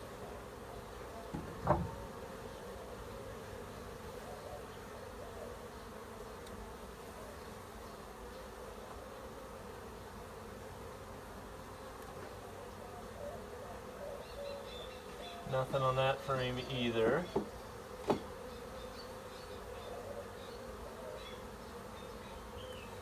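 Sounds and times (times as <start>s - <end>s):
bees buzzing around hive: 0.0s - 23.0s
short knocks: 1.3s - 2.1s, 17.3s - 18.3s.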